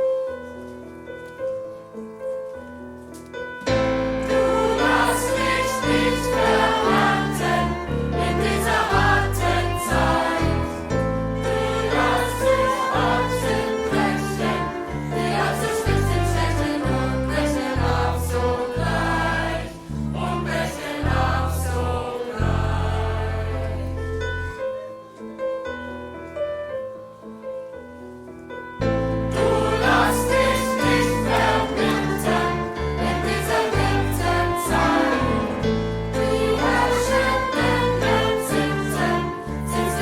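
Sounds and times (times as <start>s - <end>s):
school band playing: 4.3s - 10.6s, 11.5s - 16.8s, 29.4s - 35.6s, 36.2s - 40.0s.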